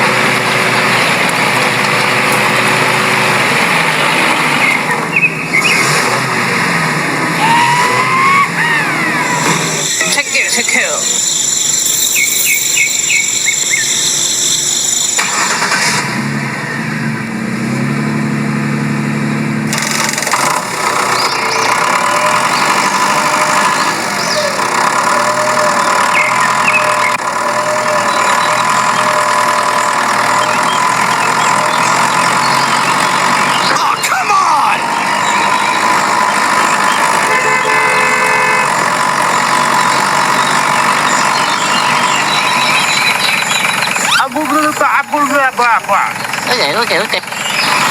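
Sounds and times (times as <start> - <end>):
mini tractor engine running: 0.0 - 16.2, 18.5 - 47.9
horn-like tone: 37.2 - 39.0.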